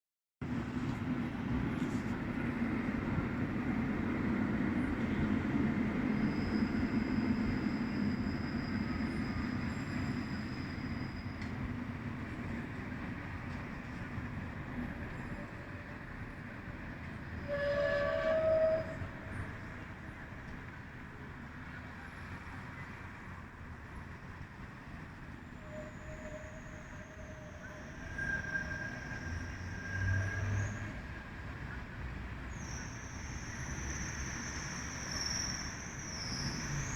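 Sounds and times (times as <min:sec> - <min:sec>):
tram running on rails: 0:00.4 - 0:36.9
high-pitched wheel squeal: 0:06.1 - 0:11.5, 0:17.4 - 0:19.8, 0:25.5 - 0:31.0, 0:32.5 - 0:36.9.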